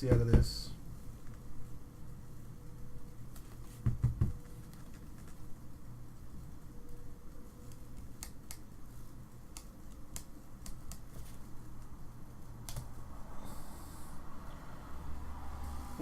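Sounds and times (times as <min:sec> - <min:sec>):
low steady hum: 0:00.0 - 0:16.0
cards clicking and snapping: 0:09.5 - 0:11.9.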